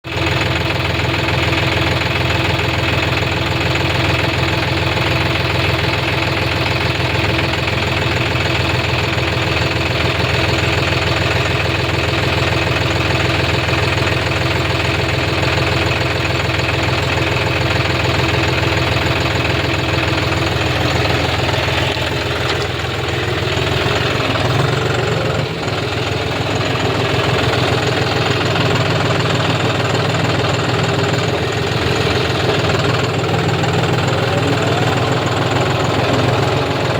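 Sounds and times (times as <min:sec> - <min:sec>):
diesel tractor engine running: 0:00.0 - 0:36.9.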